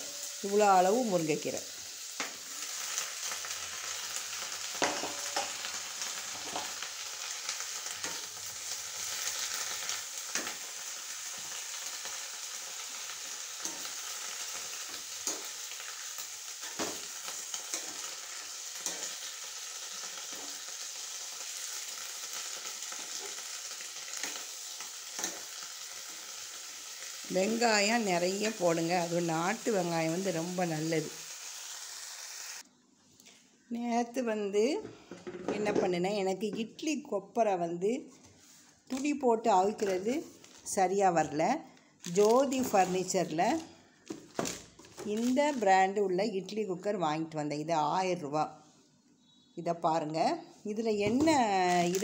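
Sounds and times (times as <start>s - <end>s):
leaves sizzling in oil: 0.0s - 32.6s, 38.4s - 43.7s, 44.4s - 46.4s, 50.7s - 52.0s.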